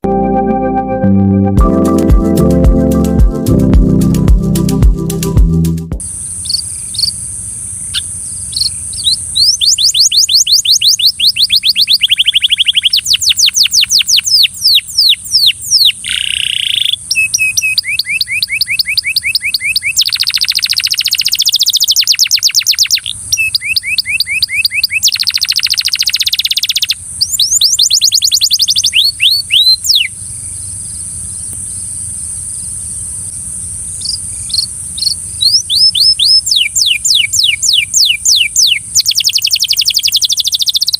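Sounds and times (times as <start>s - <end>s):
steady high-pitched hiss: 1.9s - 11.3s, 29.8s - 35.5s
canary singing trills: 6.2s - 31.9s, 33.9s - 40.9s.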